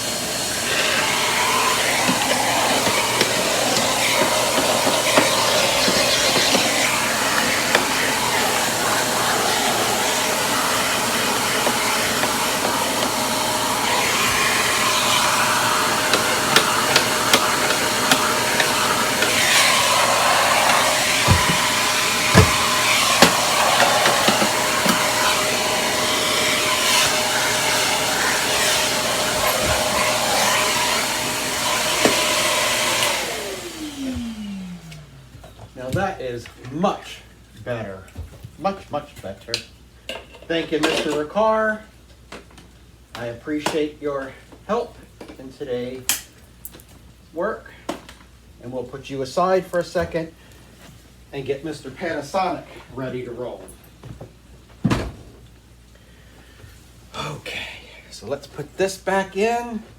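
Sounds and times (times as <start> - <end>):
motor winding down whine: 0.0 - 35.4
vacuum cleaner running: 0.0 - 36.0.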